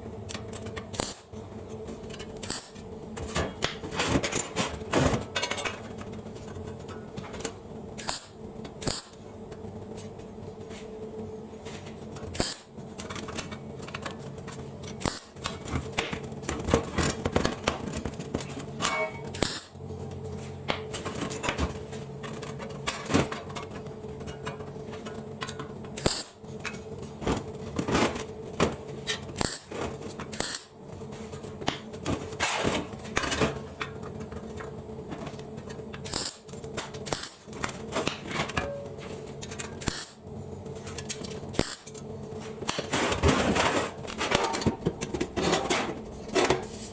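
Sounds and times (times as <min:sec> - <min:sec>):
steady machine hum: 0:00.0 - 0:46.9.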